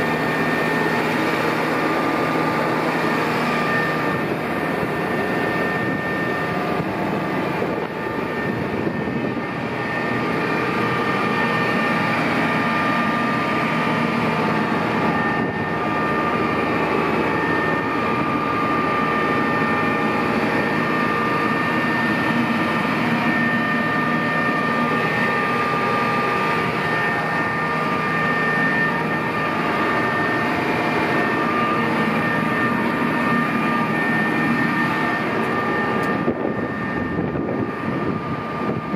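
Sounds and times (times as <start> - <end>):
high whine: 0.0 - 38.9
tractor diesel engine running: 0.0 - 38.9.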